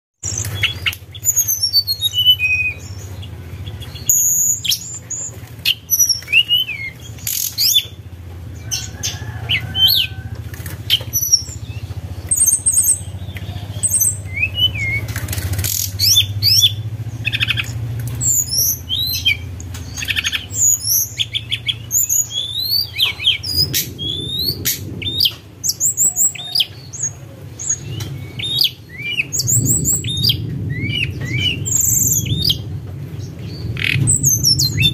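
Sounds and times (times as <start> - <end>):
songbird chirping and trilling: 0.2 - 34.9
low hum: 27.3 - 34.9.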